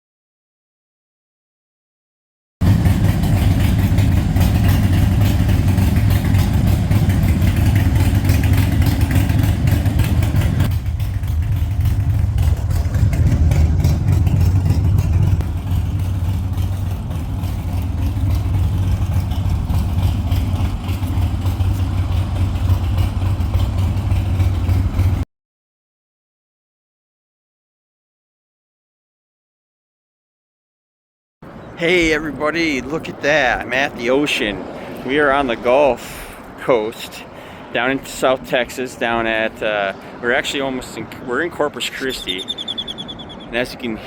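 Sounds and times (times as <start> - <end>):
motorcycle engine drone: 2.6 - 25.2, 31.4 - 38.2, 38.9 - 44.0.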